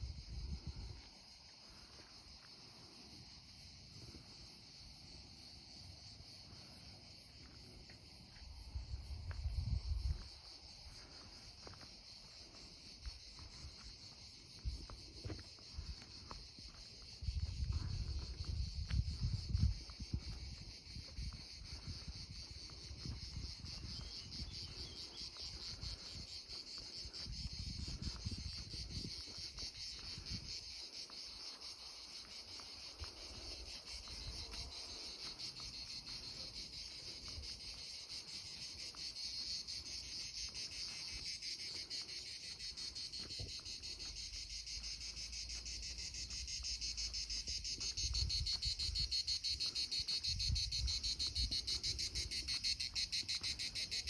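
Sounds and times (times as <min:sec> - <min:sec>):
wind on microphone: 0:00.0 - 0:01.0, 0:08.7 - 0:10.4, 0:17.2 - 0:25.0, 0:27.0 - 0:30.7, 0:48.0 - 0:49.2, 0:50.2 - 0:52.7
crickets chirring: 0:00.0 - 0:54.0.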